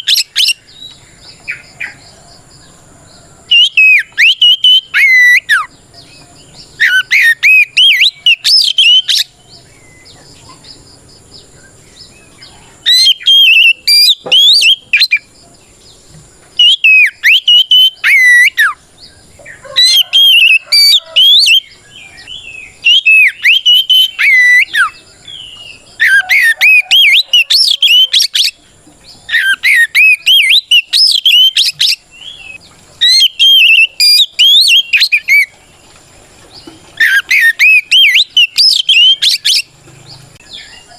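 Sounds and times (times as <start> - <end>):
bird singing whistled phrases: 0.0 - 2.0, 3.5 - 5.7, 6.8 - 10.2, 12.8 - 15.3, 16.6 - 18.8, 19.8 - 28.6, 29.3 - 35.5, 37.0 - 39.7.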